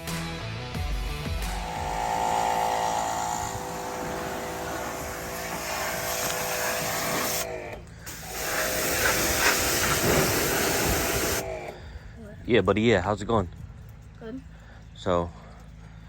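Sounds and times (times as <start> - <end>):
pressure washer motor whine: 1.3 - 12.0
water spray hiss: 1.6 - 11.8.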